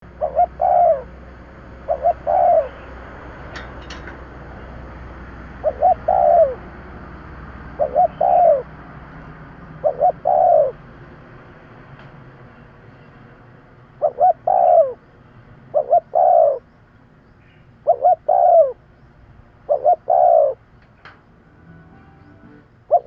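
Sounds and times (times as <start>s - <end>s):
dove cooing: 0.0s - 1.2s, 1.8s - 3.0s, 5.5s - 6.7s, 7.7s - 8.7s, 9.7s - 10.8s, 14.0s - 15.0s, 15.7s - 16.7s, 17.8s - 18.8s, 19.6s - 20.6s.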